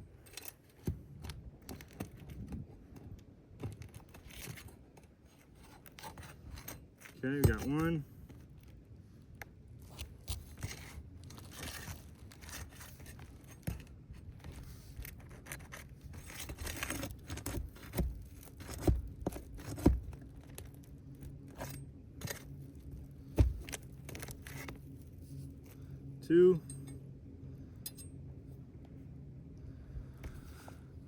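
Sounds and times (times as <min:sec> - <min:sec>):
shingles rustling: 0:09.8 - 0:25.8.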